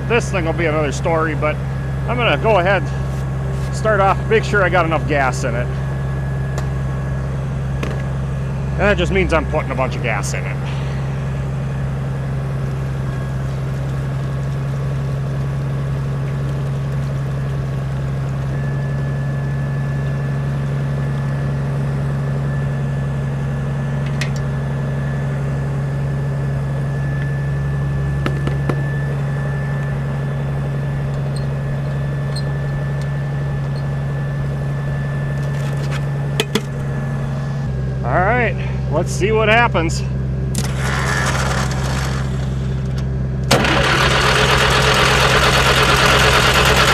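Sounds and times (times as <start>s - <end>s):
loader engine idling: 0.0s - 46.9s
short clicks and knocks: 24.0s - 24.5s, 35.3s - 37.4s.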